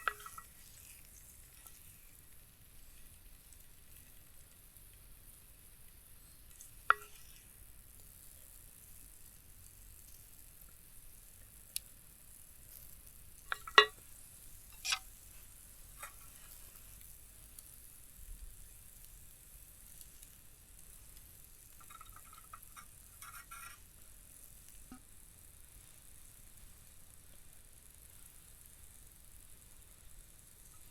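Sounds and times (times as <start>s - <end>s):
cookware clicks and knocks: 0.0s - 0.4s, 6.9s - 7.1s, 13.5s - 14.0s.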